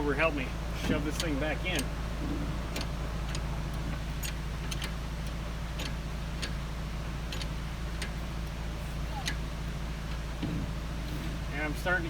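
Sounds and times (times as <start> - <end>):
steady low hum: 0.0 - 12.0
irregular sharp clicks: 2.7 - 6.6, 7.2 - 8.6.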